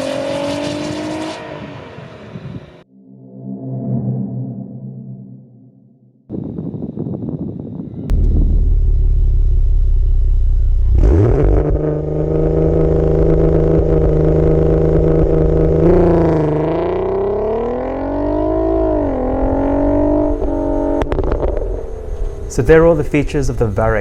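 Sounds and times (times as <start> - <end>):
car engine revving: 0.0 - 2.4, 8.1 - 24.0.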